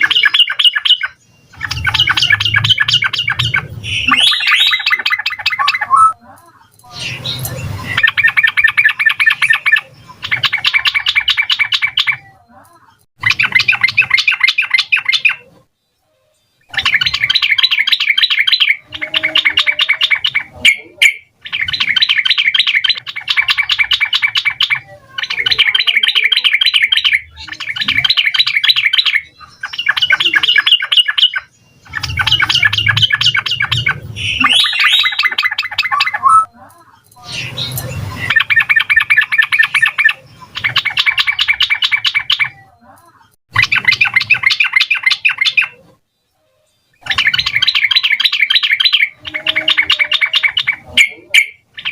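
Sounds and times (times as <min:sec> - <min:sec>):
bird singing bubbly song: 0:00.0 - 0:06.2, 0:06.8 - 0:12.5, 0:13.2 - 0:15.6, 0:16.4 - 0:36.6, 0:37.2 - 0:42.8, 0:43.5 - 0:51.9.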